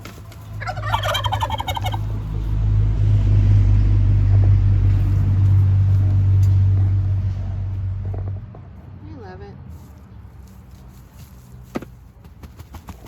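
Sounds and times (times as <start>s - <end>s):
vehicle engine rumbling: 0.0s - 13.0s
turkey gobbling: 0.5s - 2.5s.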